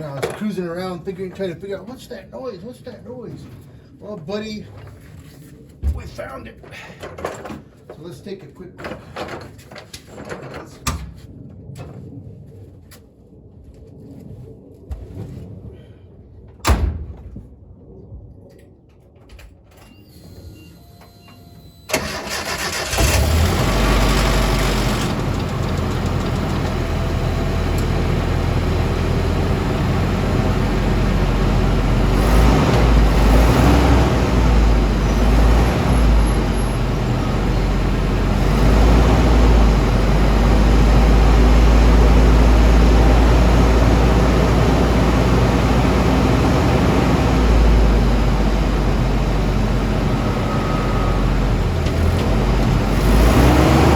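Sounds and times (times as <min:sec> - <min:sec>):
pickup truck engine running: 0:22.0 - 0:53.9.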